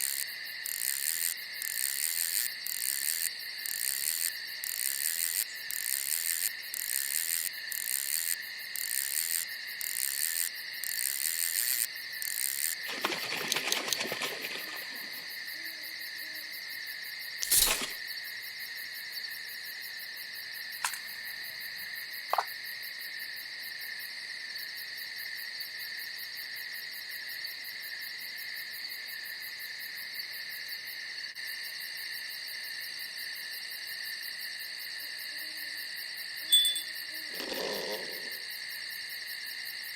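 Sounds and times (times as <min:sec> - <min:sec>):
night insects chirring: 0:00.0 - 0:39.9
sharp click: 0:17.4 - 0:18.0, 0:20.8 - 0:21.1
pulsing chirp: 0:36.5 - 0:37.9.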